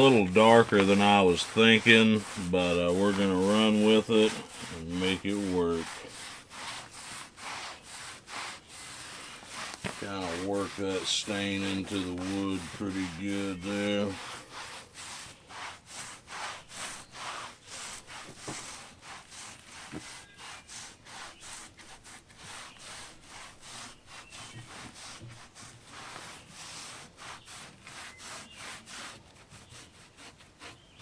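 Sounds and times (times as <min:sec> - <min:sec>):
cloth rubbing wooden board: 0:00.0 - 0:31.0.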